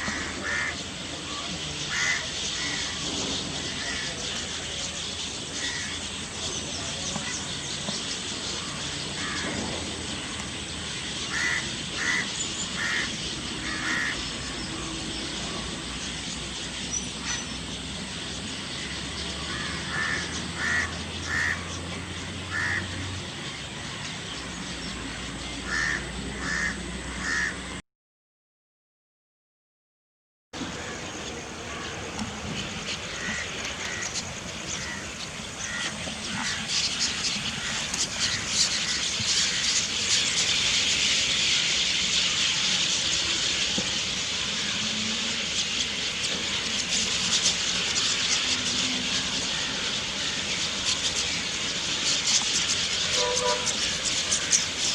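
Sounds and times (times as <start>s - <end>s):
birds calling harshly: 0.0s - 27.8s, 30.6s - 54.9s
steady background hiss: 0.0s - 27.8s, 30.6s - 54.9s.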